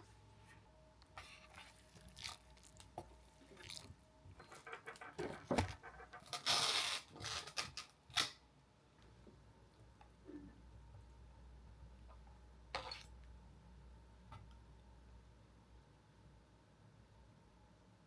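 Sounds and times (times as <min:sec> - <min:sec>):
objects knocking and clicking: 0:04.4 - 0:06.3.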